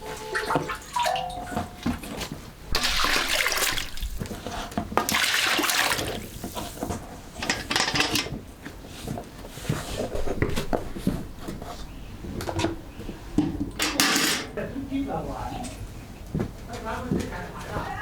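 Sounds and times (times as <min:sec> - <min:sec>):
water sloshing: 0:00.0 - 0:06.9
knocks and clatter: 0:13.4 - 0:14.6.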